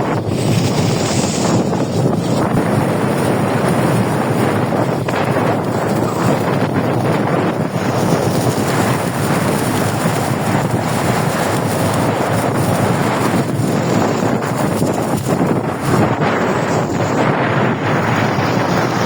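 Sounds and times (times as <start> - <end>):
boat engine running: 0.0 - 19.0
water noise: 0.0 - 19.0
wind buffeting microphone: 0.0 - 19.0.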